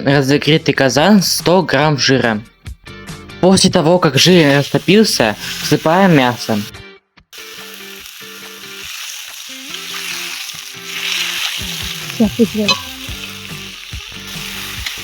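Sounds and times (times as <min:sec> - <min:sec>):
meat sizzling in hot fat: 0:04.2 - 0:06.7, 0:07.4 - 0:15.0.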